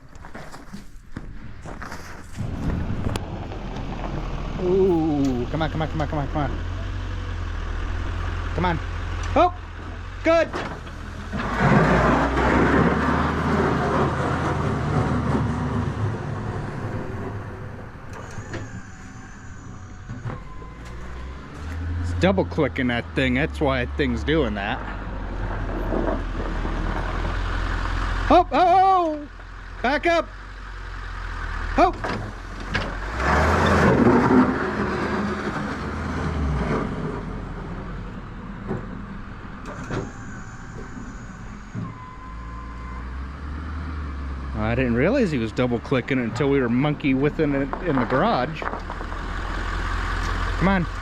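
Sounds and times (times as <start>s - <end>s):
snowplow blade scraping snow: 1.5s - 28.3s, 31.3s - 38.0s, 39.5s - 51.0s
low engine hum: 2.4s - 51.0s
faint high whine: 39.7s - 43.0s
pickup truck engine running: 44.5s - 51.0s.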